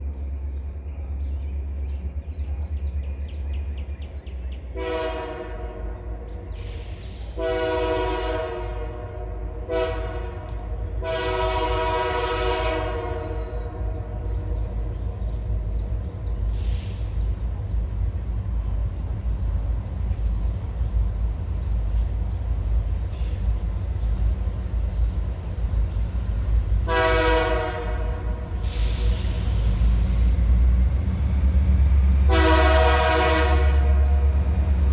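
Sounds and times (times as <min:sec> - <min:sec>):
low diesel rumble: 0:00.0 - 0:34.9
diesel locomotive horn blasts: 0:04.6 - 0:17.7, 0:24.9 - 0:34.9.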